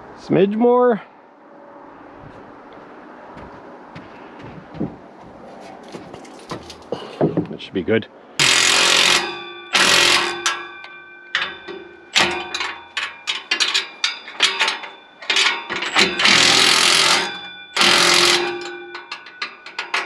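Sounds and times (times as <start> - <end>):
clicks and clanks of tools: 8.4 - 20.0
impact wrench hammering: 8.4 - 20.0
metallic ringing: 8.4 - 20.0.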